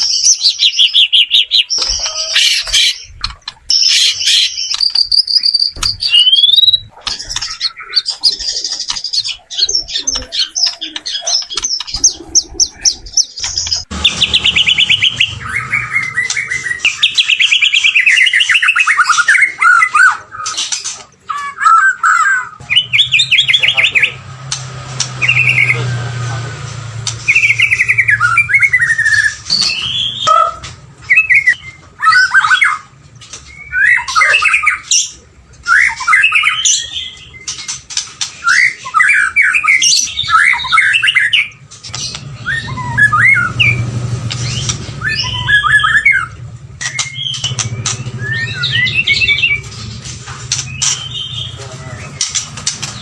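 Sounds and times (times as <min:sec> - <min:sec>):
bird singing whistled phrases: 0:03.7 - 0:08.4, 0:09.3 - 0:20.5, 0:25.2 - 0:25.9, 0:27.2 - 0:32.8, 0:33.5 - 0:34.9, 0:35.7 - 0:37.5, 0:38.4 - 0:41.5, 0:42.3 - 0:49.7.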